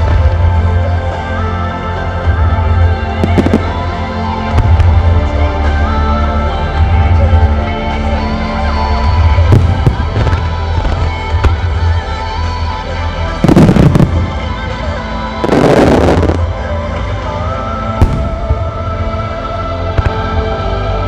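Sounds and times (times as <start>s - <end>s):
music: 0.0s - 21.0s
fireworks bursting: 3.2s - 5.1s, 9.5s - 11.6s, 13.4s - 16.6s, 18.0s - 19.1s
fireworks crackling: 3.2s - 5.2s, 9.4s - 11.9s, 13.4s - 16.6s.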